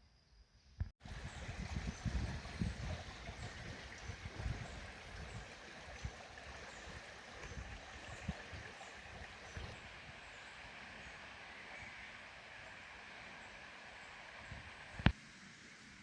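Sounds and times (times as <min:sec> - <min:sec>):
stream water rushing: 0:01.0 - 0:16.0.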